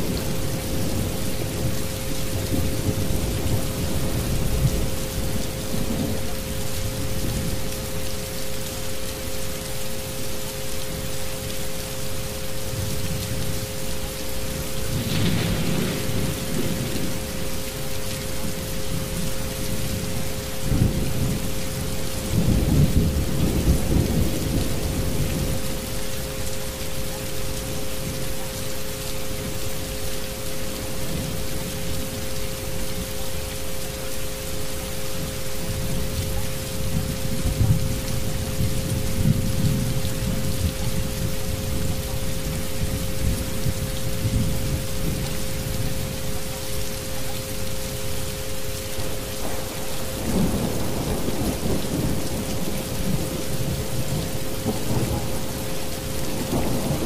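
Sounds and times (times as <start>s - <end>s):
steady rain: 0.0s - 57.0s
thunder rumbling: 14.9s - 17.6s, 49.4s - 57.0s.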